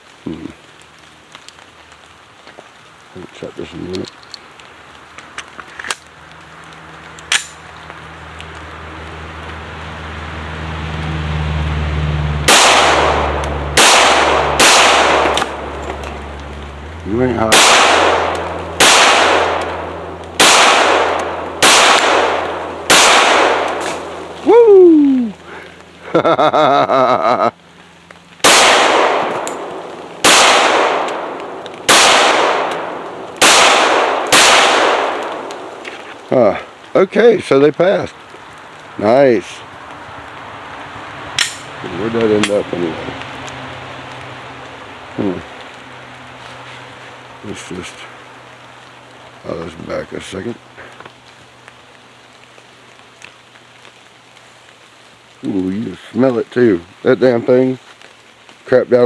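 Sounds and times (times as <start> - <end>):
low steady hum: 0.0 - 37.4
pistol shot: 12.5 - 15.6, 17.5 - 24.1, 28.4 - 35.8.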